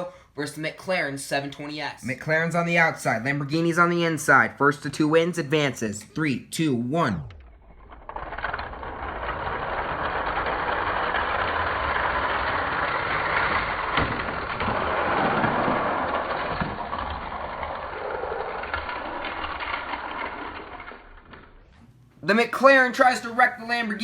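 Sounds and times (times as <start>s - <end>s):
toy cars rattling down track: 7.4s - 21.8s.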